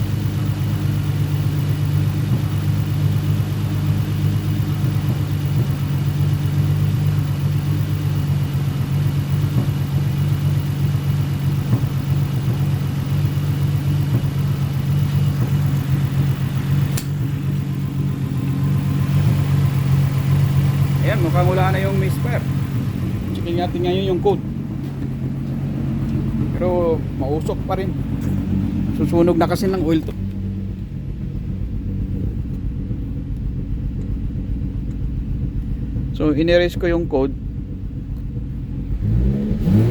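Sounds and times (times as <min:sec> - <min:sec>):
car engine idling: 0:00.0 - 0:39.9
sharp click: 0:16.8 - 0:17.3.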